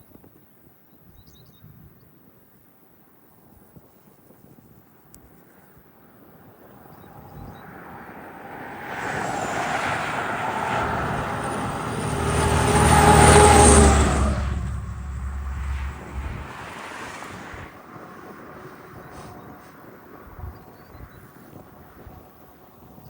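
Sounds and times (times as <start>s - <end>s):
vehicle engine passing by: 6.8s - 19.2s.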